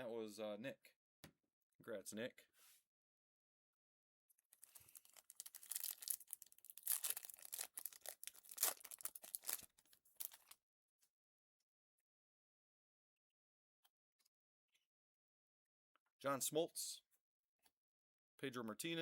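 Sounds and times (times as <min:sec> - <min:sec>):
foil wrapper tearing and crinkling: 0:04.6 - 0:10.6.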